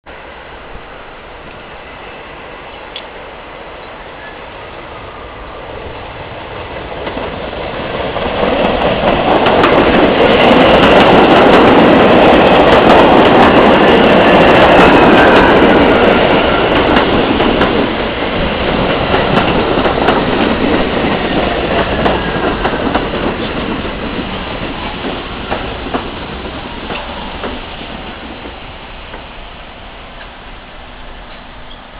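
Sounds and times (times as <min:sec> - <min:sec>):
subway train passing: 0:00.1 - 0:31.9
wheels clicking over rail joints: 0:06.5 - 0:29.3.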